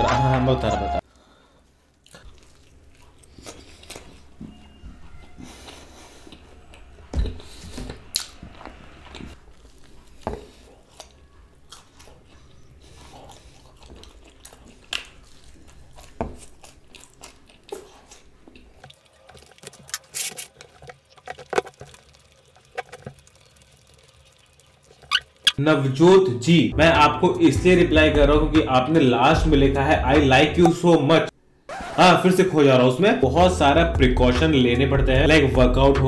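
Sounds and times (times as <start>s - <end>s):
close chewing mouth sounds: 1.9s - 4.5s, 5.4s - 25.6s.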